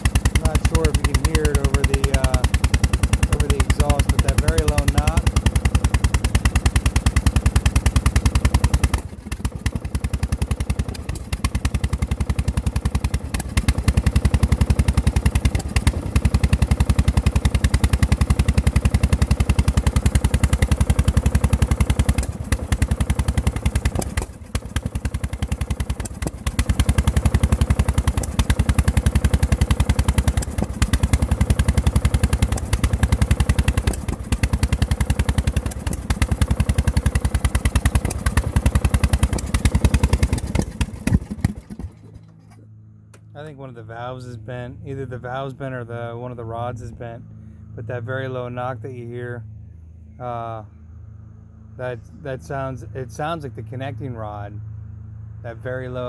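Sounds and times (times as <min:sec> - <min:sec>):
low engine knock: 0:00.0 - 0:42.4
lawn tractor engine sputtering: 0:00.0 - 0:44.0.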